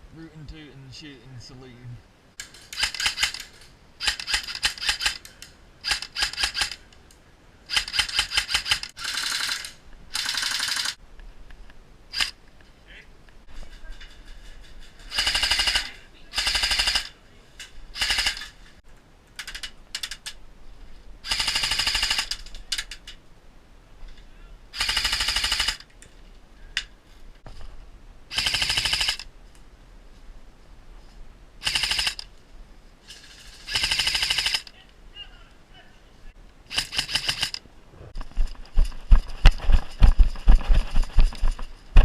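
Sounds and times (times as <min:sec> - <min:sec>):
faint scattered clicks: 0:02.4 - 0:07.2
airsoft gun firing bursts: 0:02.8 - 0:05.2, 0:05.8 - 0:06.8, 0:07.7 - 0:11.0, 0:15.1 - 0:17.1, 0:18.0 - 0:18.5, 0:21.2 - 0:22.3, 0:24.8 - 0:25.8, 0:28.3 - 0:29.2, 0:31.6 - 0:32.2, 0:33.6 - 0:34.7, 0:36.7 - 0:37.6.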